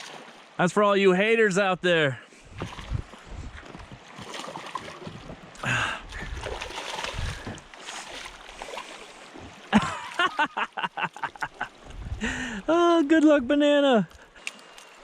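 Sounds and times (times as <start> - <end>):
water noise: 0.0 - 15.0
wind noise: 2.4 - 4.0, 5.0 - 7.7, 11.8 - 12.6.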